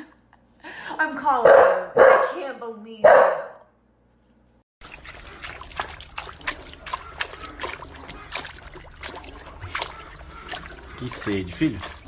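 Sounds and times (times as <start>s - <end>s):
small water splashes: 4.8s - 12.0s
water trickling: 4.8s - 12.0s.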